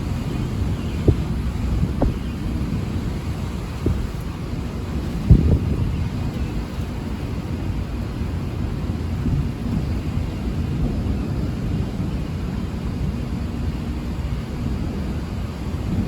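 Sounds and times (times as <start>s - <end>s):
rolling thunder: 0.0s - 16.0s.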